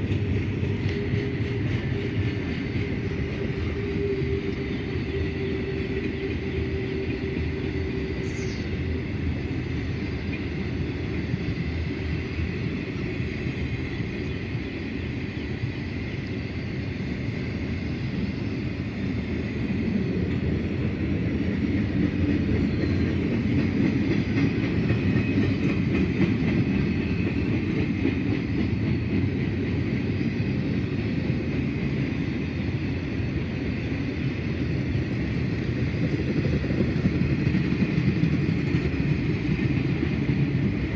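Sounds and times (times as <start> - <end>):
train wheels rumbling and rattling: 0.0 - 40.9.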